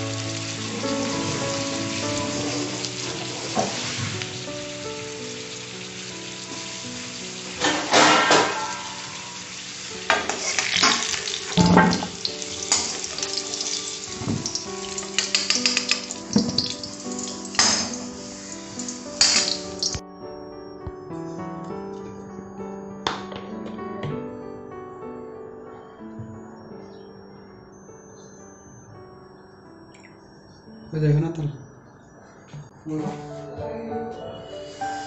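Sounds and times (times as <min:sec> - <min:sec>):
food frying in oil: 0:00.0 - 0:20.0
steel ladle scraping a pan: 0:07.6 - 0:11.7.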